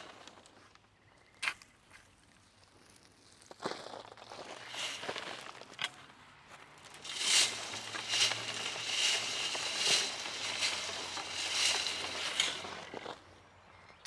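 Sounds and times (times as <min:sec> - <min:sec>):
wood chips rustling in a sieve: 0:04.2 - 0:05.9, 0:06.8 - 0:13.3.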